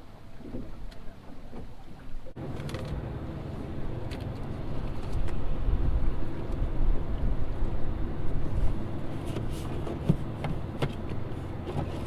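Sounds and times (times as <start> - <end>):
boat motor humming: 0.6 - 12.0
wind rumble on microphone: 3.5 - 12.0.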